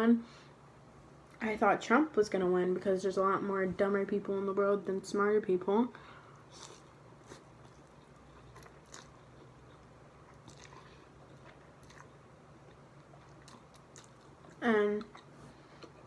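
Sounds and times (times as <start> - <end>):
person chewing close to microphone: 6.4 - 16.0.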